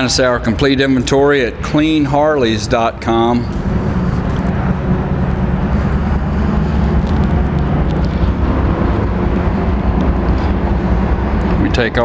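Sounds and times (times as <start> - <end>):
motorcycle engine running: 3.0 - 12.0.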